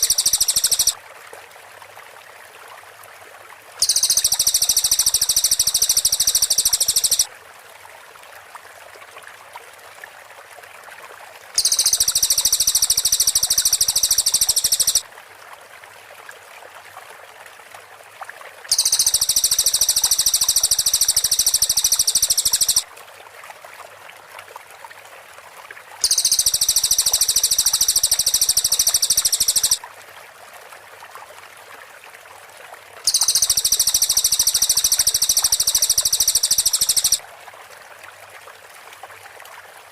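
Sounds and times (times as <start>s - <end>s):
bird trilling: 0.0s - 1.0s, 3.8s - 7.3s, 11.6s - 15.0s, 18.7s - 22.8s, 26.0s - 29.8s, 33.1s - 37.2s.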